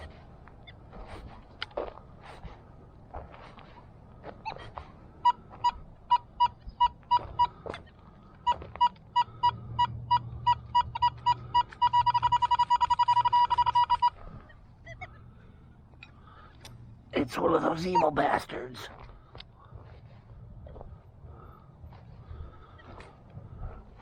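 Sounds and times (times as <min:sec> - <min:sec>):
metal detector beeping: 0:05.2 - 0:15.2, 0:17.2 - 0:18.9.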